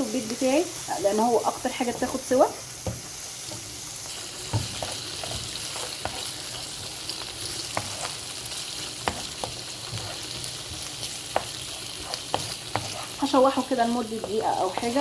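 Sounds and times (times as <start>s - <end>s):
squid sizzling in oil: 0.0s - 15.0s
utensil scraping a pan: 4.4s - 15.0s.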